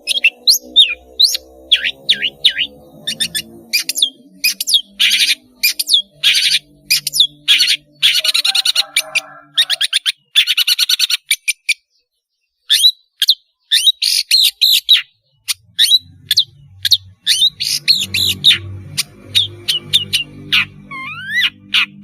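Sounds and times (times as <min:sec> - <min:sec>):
bird singing harsh calls: 0:00.0 - 0:22.0.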